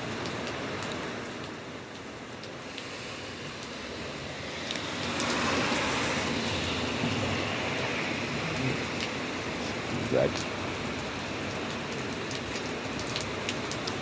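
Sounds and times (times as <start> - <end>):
steady rain falling: 0.0 - 14.0
tyres hissing on wet pavement: 4.0 - 14.0.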